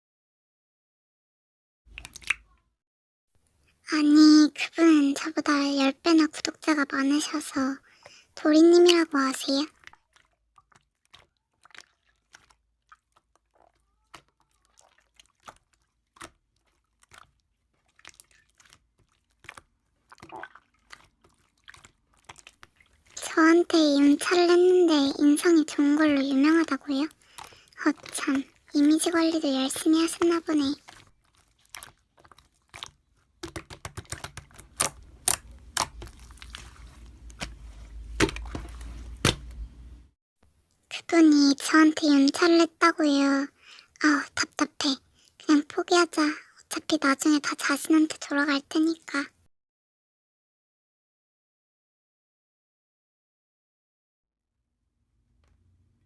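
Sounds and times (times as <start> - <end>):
slime being squeezed by hand: 9.8 - 23.2
slime clicking and popping: 31.7 - 36.2.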